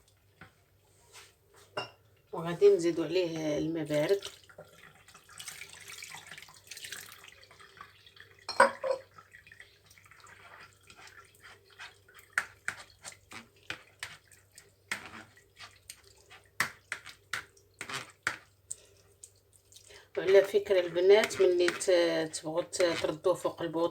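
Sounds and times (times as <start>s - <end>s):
water dripping: 2.0s - 22.4s
water pouring into a pot: 3.8s - 22.4s.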